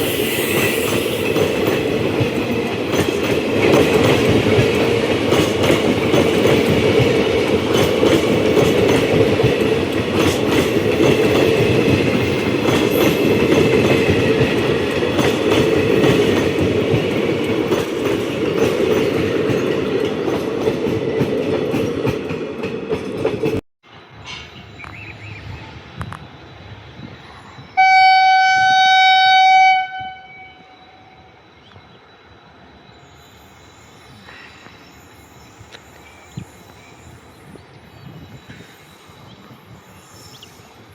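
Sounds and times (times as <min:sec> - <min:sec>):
train wheels rumbling and clattering: 0:00.0 - 0:27.8
locomotive horn blast: 0:27.8 - 0:31.1.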